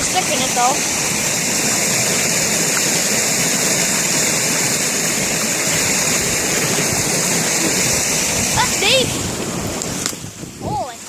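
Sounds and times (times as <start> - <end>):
water rushing through brook: 0.0 - 11.0.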